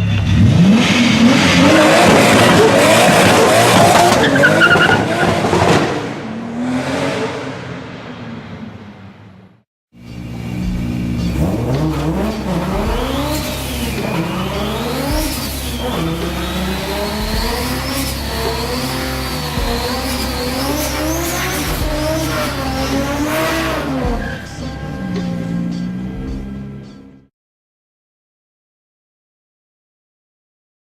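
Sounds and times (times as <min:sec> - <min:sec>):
car engine revving hard: 0:00.2 - 0:08.0, 0:10.1 - 0:26.9
turbo whine: 0:10.0 - 0:25.3.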